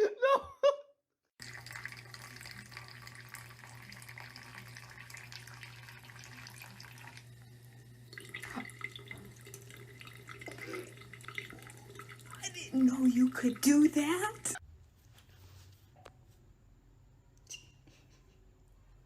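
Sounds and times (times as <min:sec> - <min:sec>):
tap water running into sink: 0:01.4 - 0:14.6.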